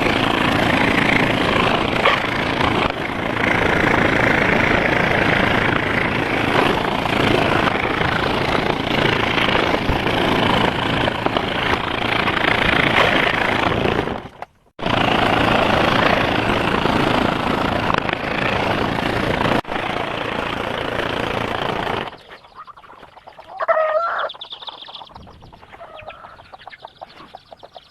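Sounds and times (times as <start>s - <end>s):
scroll saw running: 0.0s - 22.3s
chicken clucking: 22.2s - 27.9s.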